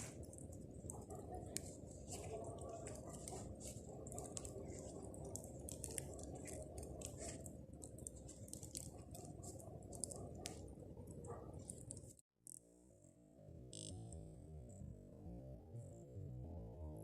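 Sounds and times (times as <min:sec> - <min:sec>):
bonfire crackling: 0:00.0 - 0:12.2.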